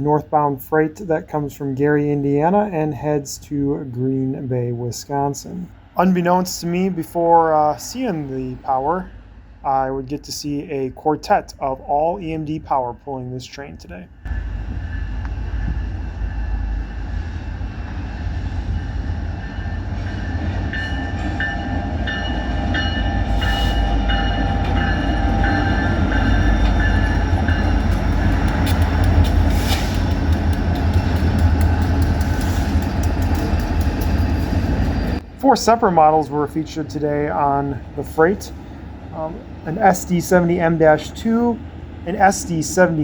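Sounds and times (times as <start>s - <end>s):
diesel locomotive rumble: 13.9s - 43.0s
crossing bell ringing: 18.7s - 35.2s
train wheel clicks: 25.5s - 35.2s.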